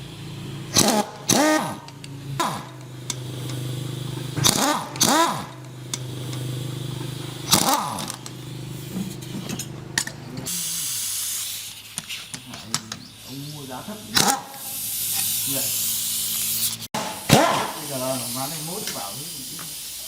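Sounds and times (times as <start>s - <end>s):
hiss: 0.0s - 9.6s, 10.5s - 20.0s
engine humming: 0.0s - 10.8s.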